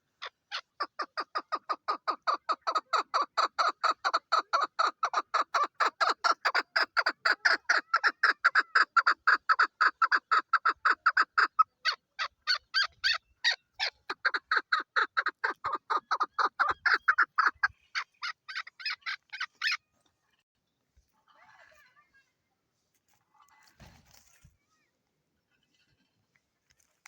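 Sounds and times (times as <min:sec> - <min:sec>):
partridge calling: 0:00.0 - 0:19.9.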